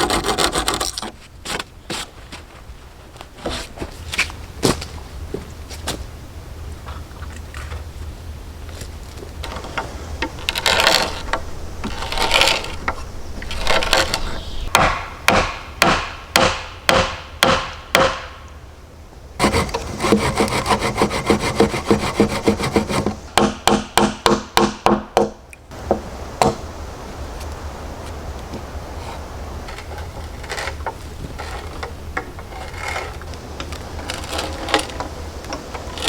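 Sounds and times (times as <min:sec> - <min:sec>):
rasp strokes on wood: 0:00.0 - 0:01.1, 0:09.5 - 0:18.2, 0:19.4 - 0:24.7
tool scraping wood: 0:00.0 - 0:02.1, 0:09.4 - 0:18.2, 0:19.4 - 0:23.4, 0:29.7 - 0:36.0
sharp knocks on wood: 0:14.7 - 0:18.4, 0:23.4 - 0:26.6.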